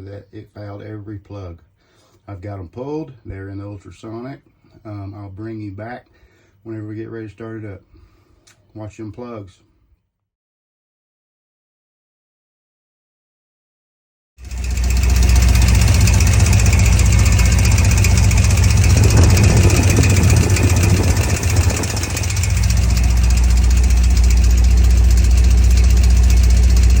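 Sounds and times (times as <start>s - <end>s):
car engine idling: 14.4s - 27.0s.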